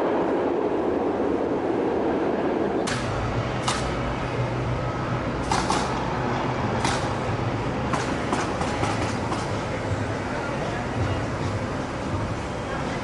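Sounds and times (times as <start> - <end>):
machinery low hum: 0.0 - 13.0
metallic clicks and clanks: 2.8 - 4.0, 6.8 - 7.3, 7.9 - 9.6.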